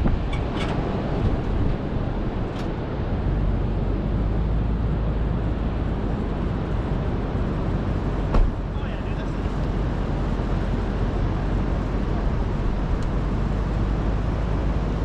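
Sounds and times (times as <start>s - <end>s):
vehicle road noise rumble: 0.0s - 15.0s.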